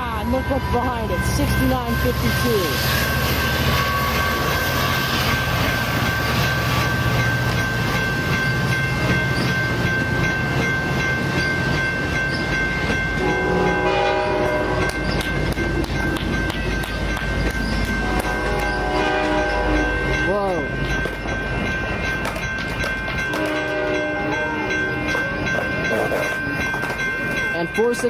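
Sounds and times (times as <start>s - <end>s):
train rumble and wheel clatter: 0.0s - 28.0s
train horn chord: 13.2s - 15.0s, 18.0s - 20.2s, 23.4s - 25.0s.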